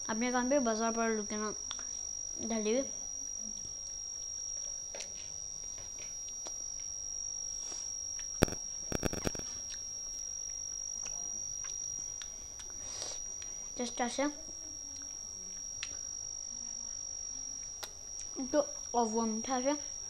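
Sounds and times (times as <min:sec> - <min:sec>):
cricket trill: 0:00.0 - 0:20.0
child chewing: 0:07.6 - 0:13.8, 0:15.0 - 0:16.1, 0:17.6 - 0:19.0
sharp clicks: 0:08.4 - 0:09.6.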